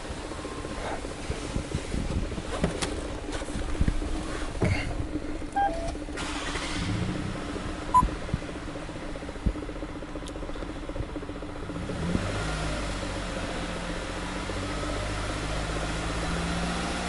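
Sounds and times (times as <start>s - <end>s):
car engine idling: 0.0s - 17.0s
short electronic beeps: 5.6s - 6.0s, 7.9s - 8.1s.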